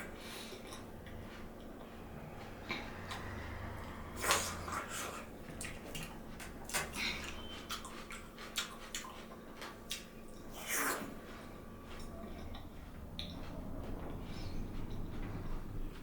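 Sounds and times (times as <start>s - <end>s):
person chewing: 2.7s - 13.4s.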